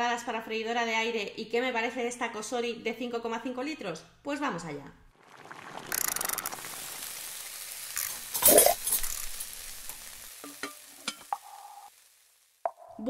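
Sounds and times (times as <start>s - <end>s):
food sizzling in a frying pan: 5.2s - 13.0s.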